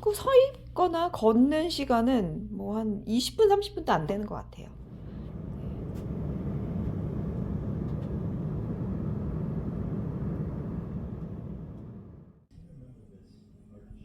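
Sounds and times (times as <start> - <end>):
vehicle rumbling in motion: 4.8 - 12.4.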